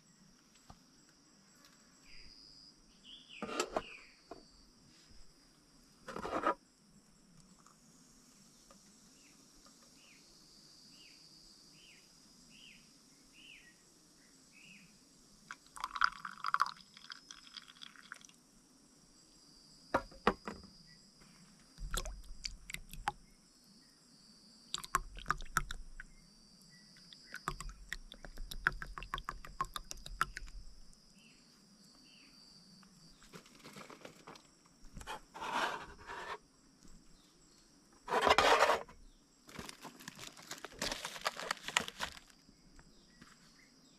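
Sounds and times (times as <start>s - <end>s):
high insect hum: 0.0s - 43.9s
crackling and rustling leaves: 33.2s - 35.0s, 39.5s - 42.5s.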